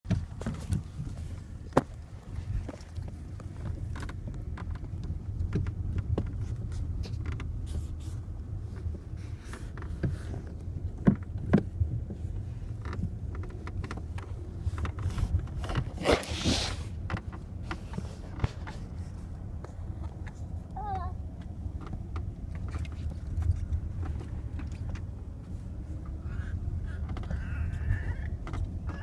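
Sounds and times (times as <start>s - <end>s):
car cabin rumble: 0.1s - 29.0s
car door creaks and clicks: 3.1s - 20.5s, 26.8s - 29.0s
brief rush of noise: 16.0s - 16.9s.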